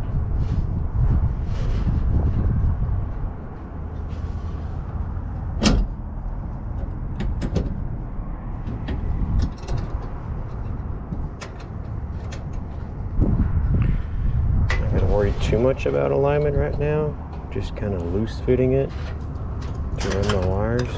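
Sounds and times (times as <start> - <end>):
low rumble: 0.0 - 18.0
metal parts knocking and clicking: 19.0 - 20.9.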